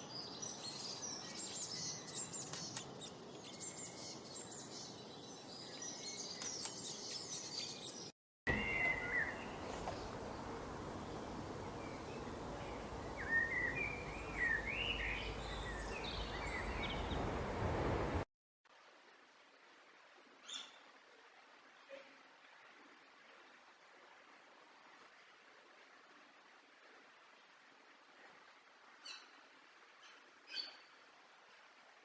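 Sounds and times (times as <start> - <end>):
lower warbling birdsong: 0.0 - 18.2
steady background hiss: 8.5 - 18.2.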